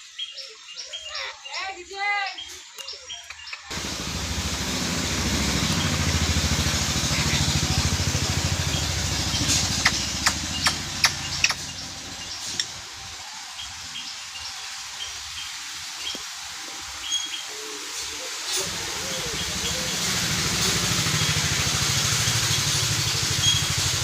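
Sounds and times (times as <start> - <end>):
engine running with fast pulse: 3.7 - 13.6, 18.5 - 24.0.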